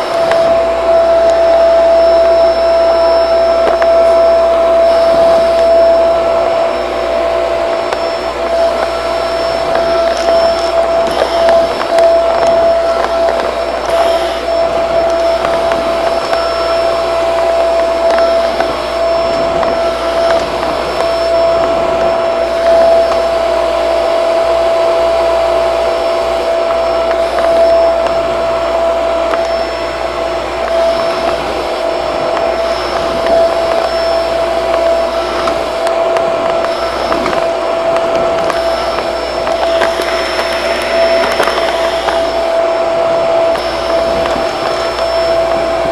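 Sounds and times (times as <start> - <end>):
vacuum cleaner running: 0.0 - 45.9.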